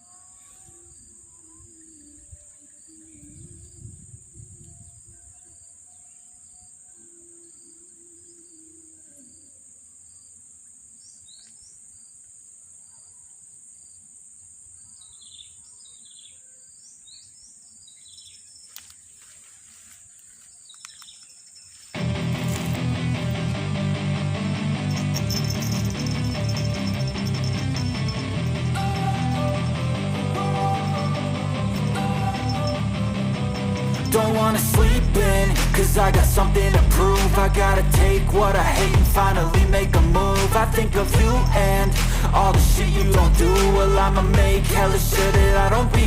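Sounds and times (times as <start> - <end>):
high-pitched insect drone: 21.5 - 36.5, 39.2 - 45.7
low rumble: 31.4 - 46.0.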